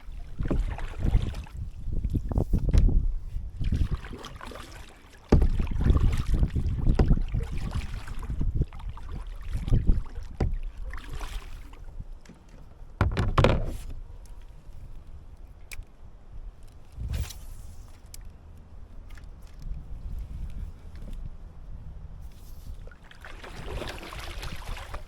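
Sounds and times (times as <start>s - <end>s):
water splashes: 0.0s - 2.4s, 3.6s - 12.0s, 22.8s - 25.0s
low wind rumble on microphone: 0.0s - 4.3s, 5.3s - 25.0s
dull knocks against kayak hull: 5.3s - 7.8s, 9.8s - 10.7s, 12.3s - 14.0s.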